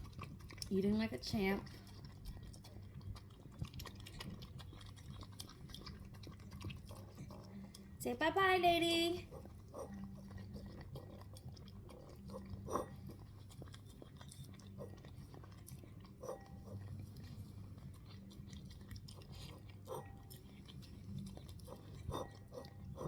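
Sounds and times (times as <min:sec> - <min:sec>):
dog chewing food: 0:00.0 - 0:23.0.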